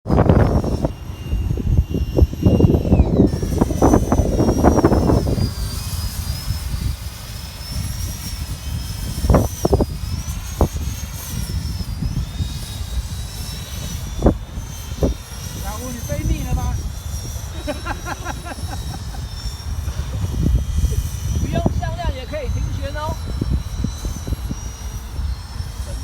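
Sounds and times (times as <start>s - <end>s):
wind buffeting microphone: 0.0s - 26.0s
jet engine whine: 0.1s - 26.0s.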